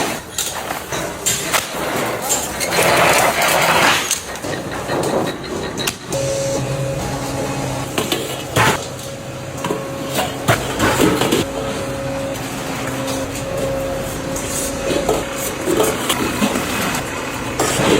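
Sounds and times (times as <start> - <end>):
machine hum: 4.2 - 17.9.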